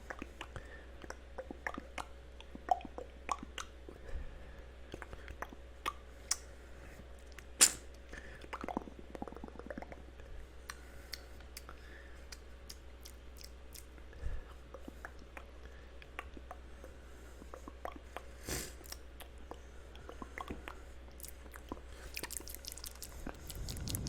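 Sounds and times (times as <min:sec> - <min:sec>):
wet mouth clicks and smacks: 0:00.0 - 0:03.8, 0:04.9 - 0:06.5, 0:07.3 - 0:07.9, 0:10.6 - 0:14.0, 0:14.7 - 0:16.6, 0:18.8 - 0:24.0
low hum: 0:19.4 - 0:24.0.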